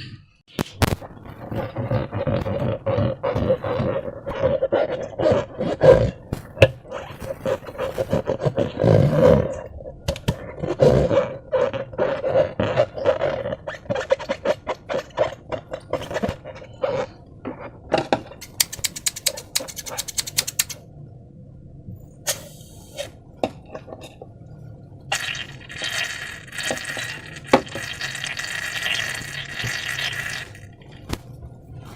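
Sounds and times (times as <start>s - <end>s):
slime squelching: 0.6s - 9.7s, 25.1s - 31.2s.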